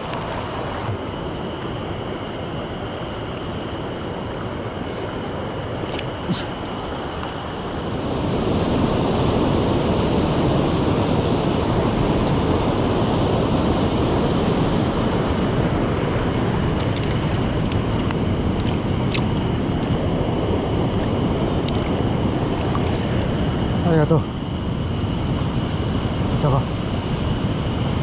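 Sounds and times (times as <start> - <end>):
stream rushing over rocks: 0.0 - 1.4.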